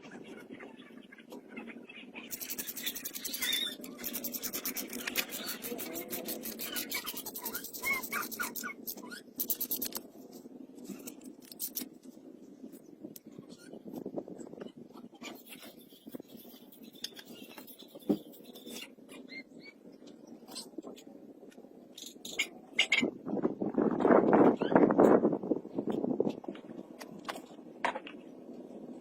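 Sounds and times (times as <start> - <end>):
fast scraping strokes: 2.3 - 11.9
scratches: 2.3 - 12.8, 15.2 - 19.4.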